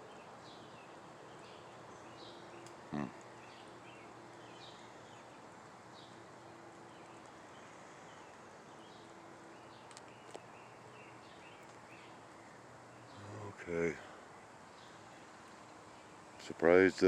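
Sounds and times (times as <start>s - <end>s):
distant birds chirping: 0.0s - 17.0s
steady background hiss: 0.0s - 17.0s
small clicks: 9.8s - 10.5s.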